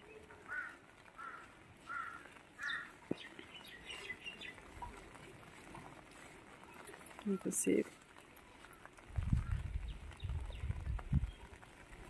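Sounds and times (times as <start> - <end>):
bird calling: 0.0 - 5.2.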